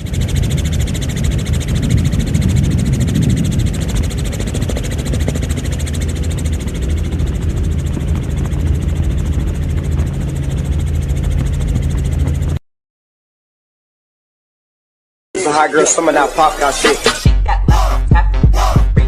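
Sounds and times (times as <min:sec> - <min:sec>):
aircraft engine drone: 0:00.0 - 0:12.6, 0:15.4 - 0:18.0.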